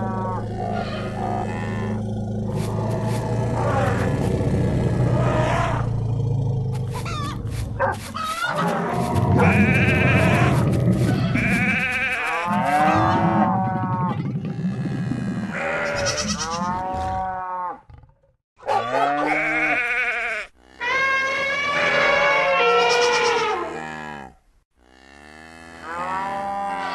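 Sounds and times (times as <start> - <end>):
farm animals bleating: 0.0 - 2.1, 8.2 - 14.1, 15.5 - 17.8, 18.7 - 26.9.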